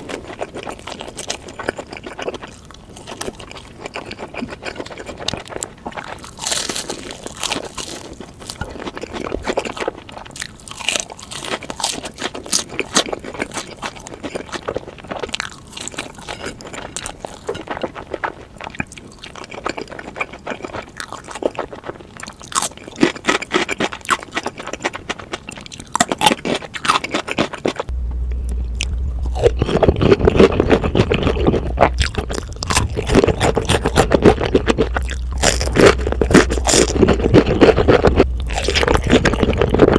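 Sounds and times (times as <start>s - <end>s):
crunching and chewing fried chicken: 0.0s - 39.9s
steady low hum: 27.8s - 39.9s.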